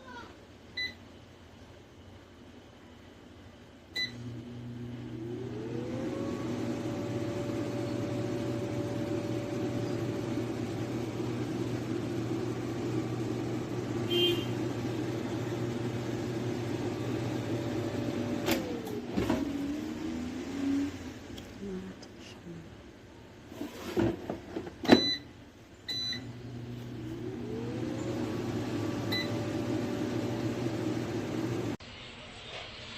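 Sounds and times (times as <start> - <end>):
air fryer fan whining and humming: 3.9 - 21.8, 25.9 - 31.8.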